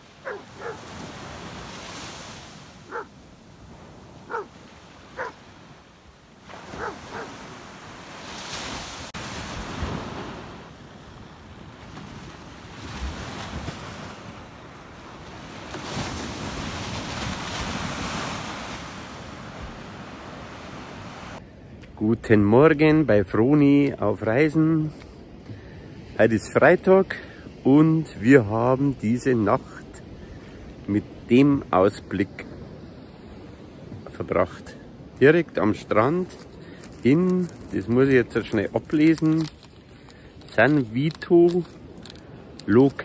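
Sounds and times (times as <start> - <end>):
waves washing onto sandy beach: 0.0 - 21.4
dog barking: 0.2 - 0.9, 2.9 - 3.1, 4.3 - 5.4, 6.7 - 7.4.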